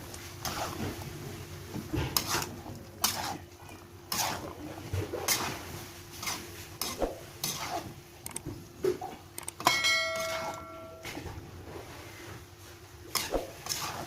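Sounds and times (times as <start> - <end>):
metal utensil scraping a pan: 2.1 - 3.4, 4.1 - 4.5, 6.2 - 7.9, 13.1 - 14.0
ringing metal strike: 9.6 - 11.2.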